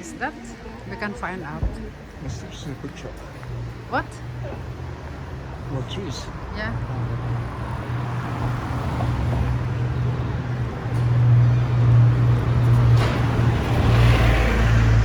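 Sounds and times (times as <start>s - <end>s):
city street traffic rumble: 0.0s - 15.0s.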